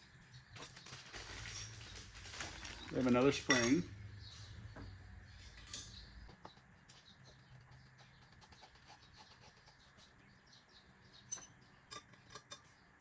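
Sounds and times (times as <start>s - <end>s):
sharp metallic clinks: 3.4s - 3.9s, 5.6s - 6.1s, 11.3s - 12.7s.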